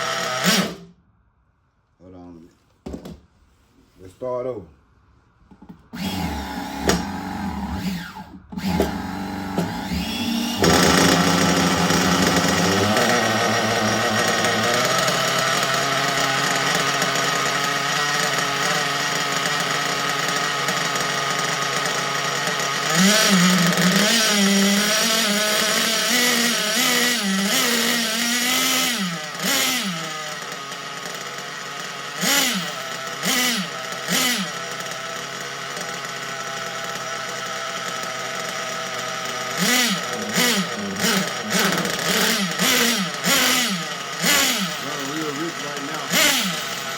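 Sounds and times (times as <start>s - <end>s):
model car nitro engine revving: 0.0s - 1.0s, 5.9s - 46.9s.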